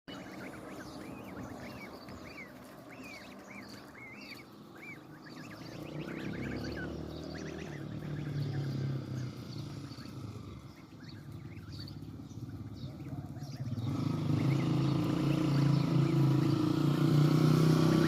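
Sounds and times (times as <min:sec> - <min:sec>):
goslings peeping: 0:00.1 - 0:18.0.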